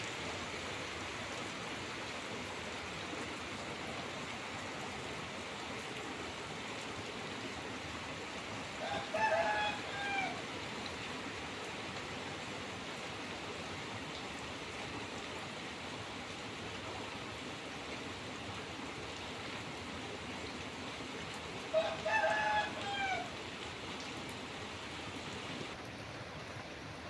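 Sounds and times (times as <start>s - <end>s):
steady rain falling: 0.0s - 27.0s
rooster crowing: 8.8s - 10.4s, 21.7s - 23.4s.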